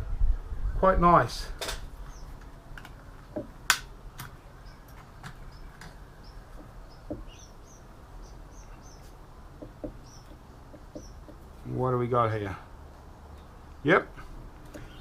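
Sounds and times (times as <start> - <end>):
computer parts clicking and knocking: 9.6 - 11.4.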